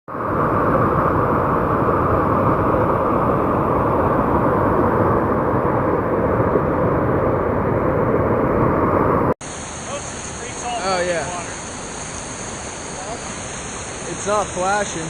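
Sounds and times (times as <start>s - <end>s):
whitewater creek rapids roaring: 9.5s - 15.0s.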